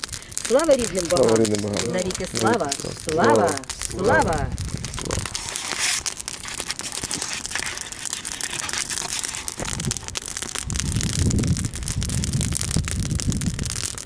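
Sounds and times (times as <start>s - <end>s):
bonfire crackling and popping: 0.0s - 14.0s.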